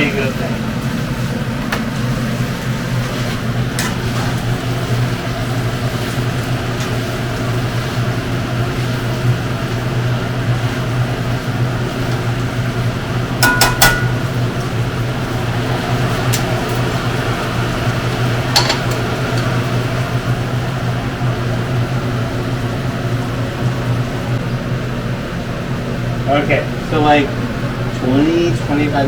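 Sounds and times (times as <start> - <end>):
exhaust fan hum: 0.0 - 29.0
utensil clinking against pan: 13.4 - 14.2, 18.6 - 19.5.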